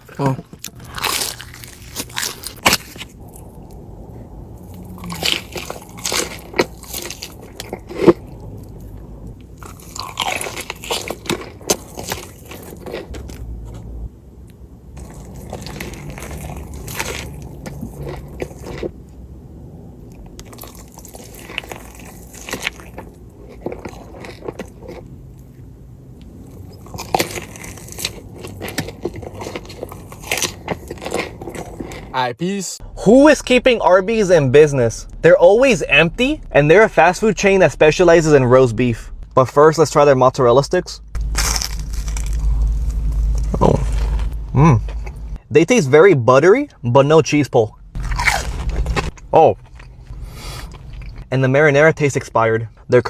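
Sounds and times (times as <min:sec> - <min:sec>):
person crunching food: 0:00.0 - 0:03.2, 0:09.5 - 0:13.3, 0:20.4 - 0:25.2, 0:26.5 - 0:32.1, 0:41.1 - 0:45.4, 0:48.0 - 0:51.3.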